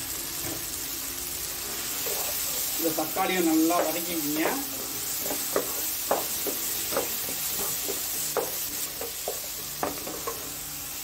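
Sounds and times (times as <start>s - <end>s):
vegetables sizzling in oil: 0.0s - 11.0s
spatula scraping and tapping pan: 3.7s - 10.6s.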